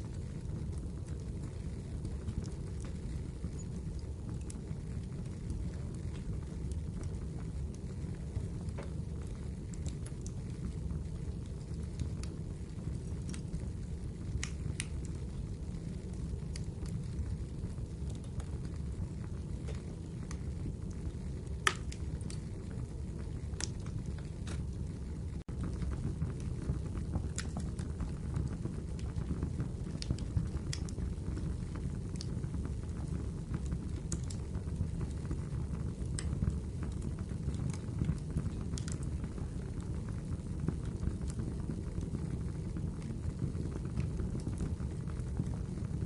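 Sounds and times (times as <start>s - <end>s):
firewood crackling and popping: 0.0s - 46.0s
wood fire burning: 0.0s - 46.0s.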